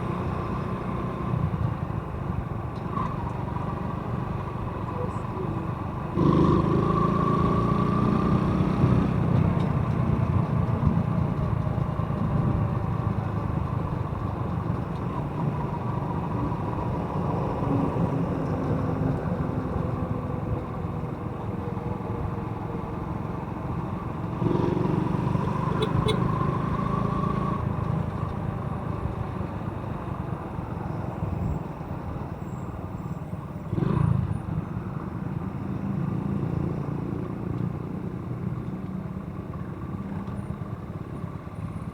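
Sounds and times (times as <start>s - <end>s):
motorcycle engine running: 23.8s - 28.0s.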